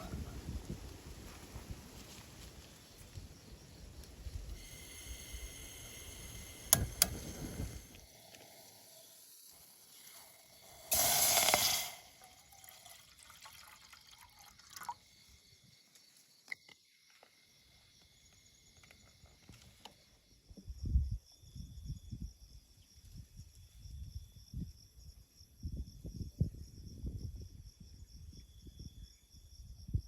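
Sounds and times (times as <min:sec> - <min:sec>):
insect chirring: 0:02.7 - 0:24.7
water being poured: 0:04.6 - 0:15.1
sharp clicks and knocks: 0:06.6 - 0:08.0.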